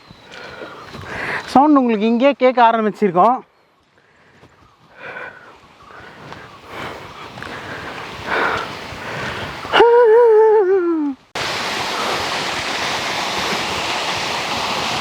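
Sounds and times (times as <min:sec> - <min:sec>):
waterfall rushing: 0:11.0 - 0:15.0.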